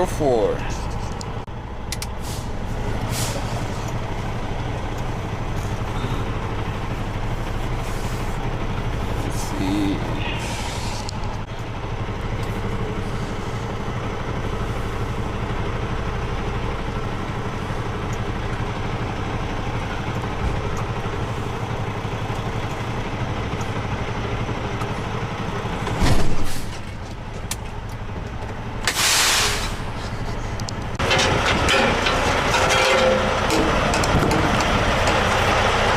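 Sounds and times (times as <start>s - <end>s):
diesel truck engine running: 0.0s - 35.9s
air brake hiss: 2.2s - 3.6s, 10.4s - 11.0s, 28.9s - 30.0s.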